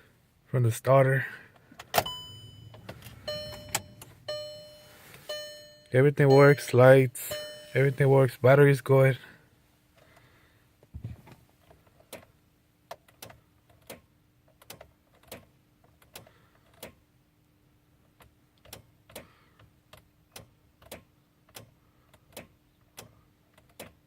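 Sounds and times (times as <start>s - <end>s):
faint steady hum: 0.0s - 14.4s
car starter clicking: 1.8s - 4.4s.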